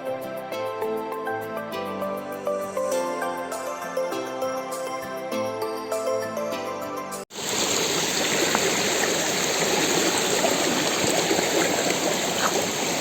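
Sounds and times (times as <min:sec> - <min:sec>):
background music: 0:00.0 - 0:07.2
water rushing: 0:07.3 - 0:13.0.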